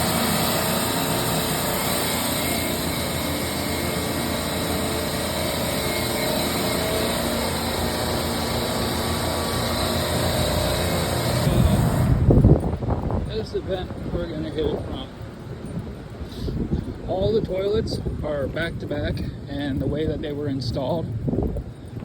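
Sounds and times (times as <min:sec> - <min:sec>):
drain-cleaning machine whirring: 0:00.0 - 0:15.8.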